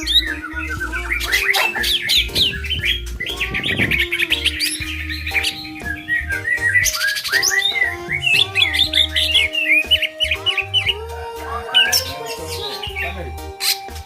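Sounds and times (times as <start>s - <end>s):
bird whistles and chirps: 0.0s - 11.0s, 11.7s - 14.0s.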